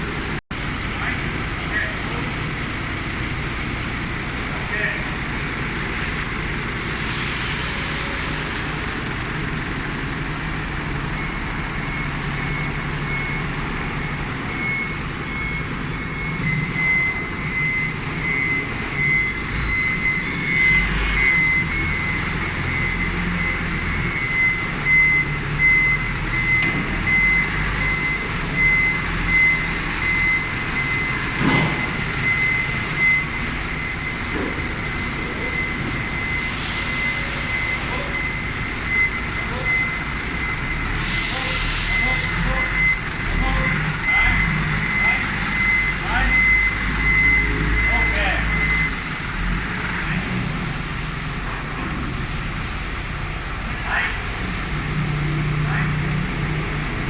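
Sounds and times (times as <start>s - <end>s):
forklift engine running: 0.0s - 57.0s
reversing alarm beeping: 9.8s - 50.7s.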